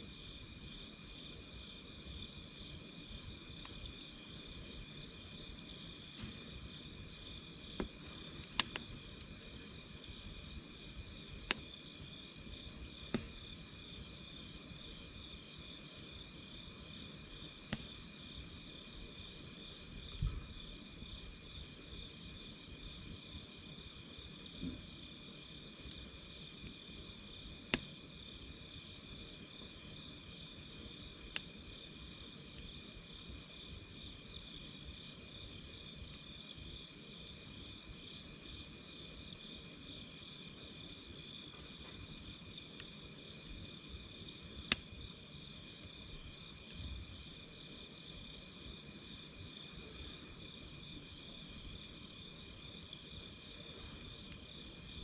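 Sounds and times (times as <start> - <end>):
campfire crackling and popping: 0.0 - 55.0
crickets trilling: 0.0 - 55.0.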